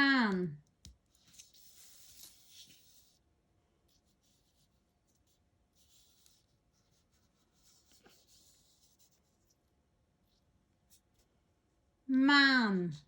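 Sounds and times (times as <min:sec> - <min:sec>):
paper rustling and scraping on table: 0:01.2 - 0:03.2.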